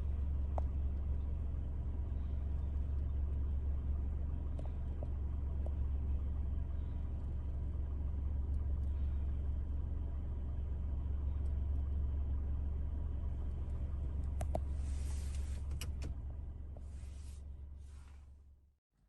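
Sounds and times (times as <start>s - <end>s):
vehicle engine rumble: 0.0s - 18.8s
brief hiss: 14.8s - 15.9s.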